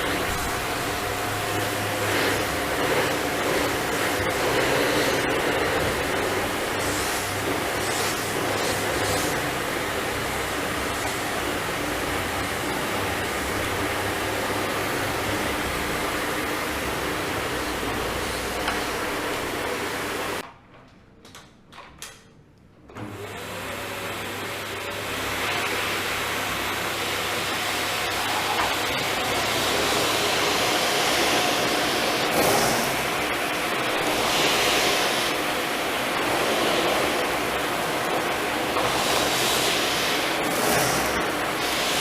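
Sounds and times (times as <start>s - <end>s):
vacuum cleaner running: 0.0s - 20.4s, 22.9s - 42.0s.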